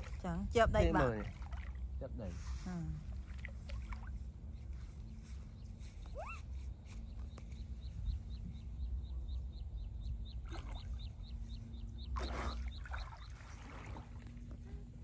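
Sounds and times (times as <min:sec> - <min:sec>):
bird chirping: 0:04.7 - 0:13.7.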